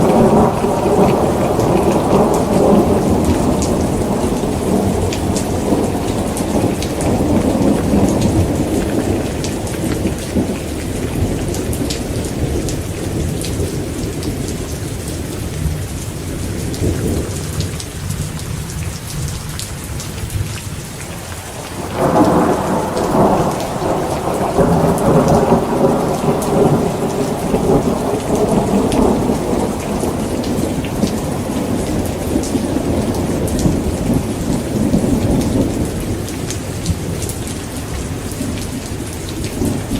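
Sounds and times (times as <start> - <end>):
thunder rumbling: 0.0 - 14.7, 21.4 - 39.9
heavy rain pattering: 0.0 - 39.9.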